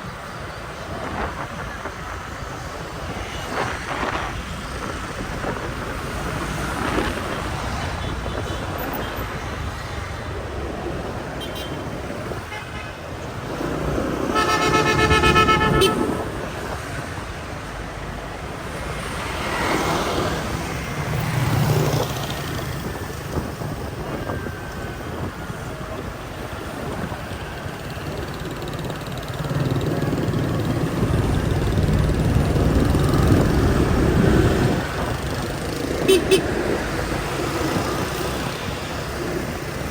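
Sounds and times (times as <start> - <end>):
motorbike engine and road noise: 0.0 - 39.9
passing vehicle engine: 13.3 - 17.4
vehicle horn honking: 14.2 - 16.3, 36.0 - 36.6.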